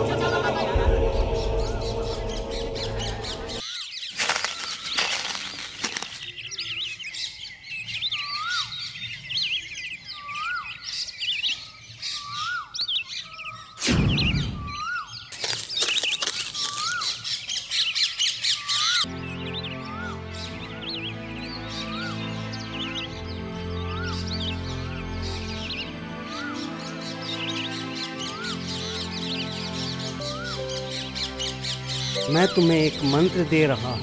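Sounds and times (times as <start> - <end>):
bird whistled call: 14.0 - 15.2.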